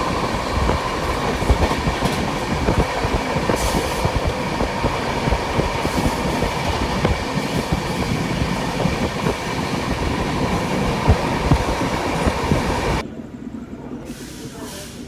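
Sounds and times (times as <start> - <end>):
rail joint clatter: 0.0 - 13.0
train wheels rumbling on rails: 0.0 - 13.0.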